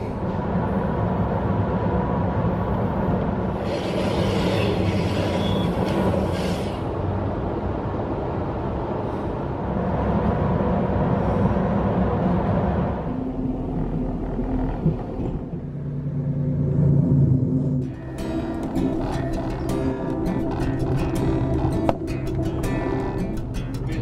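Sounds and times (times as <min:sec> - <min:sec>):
train rumbling on rails: 0:00.0 - 0:24.0
thin squeal: 0:03.6 - 0:06.8.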